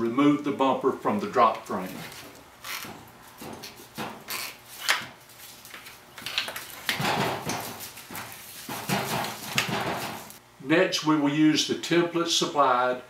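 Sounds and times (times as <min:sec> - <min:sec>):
hardware scraping and rattling: 0:06.6 - 0:10.4.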